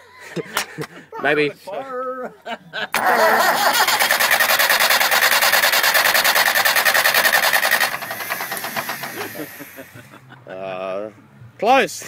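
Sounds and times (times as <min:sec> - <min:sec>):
starter motor cranking engine: 0:02.9 - 0:10.0.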